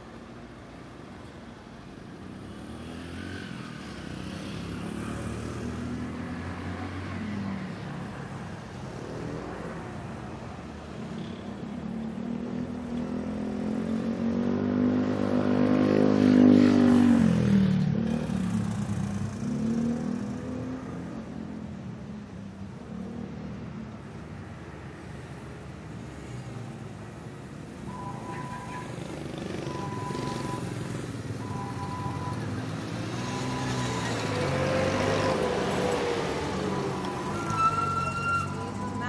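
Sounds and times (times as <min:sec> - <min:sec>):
city traffic hum: 0:00.0 - 0:39.0
smaller vehicle passing: 0:02.2 - 0:21.6, 0:24.8 - 0:39.0
vehicle passing close by: 0:28.2 - 0:37.4.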